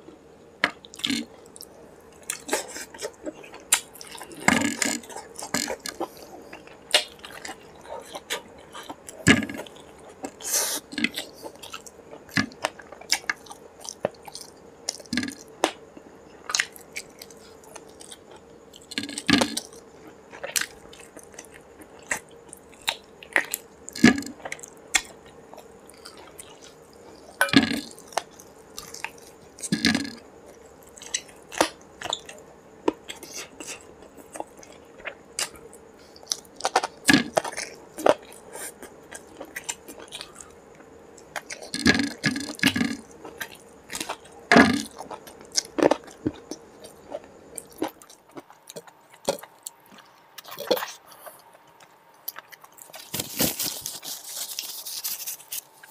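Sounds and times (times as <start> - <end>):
man chewing: 0.8 - 55.9.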